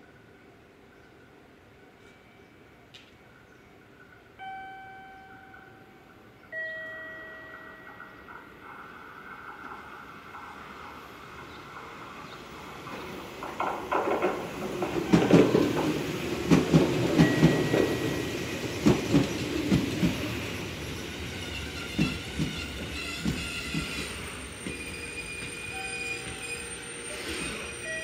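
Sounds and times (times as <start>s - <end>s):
train rumble: 2.6s - 28.0s
wheels clacking over rail joints: 7.1s - 26.6s.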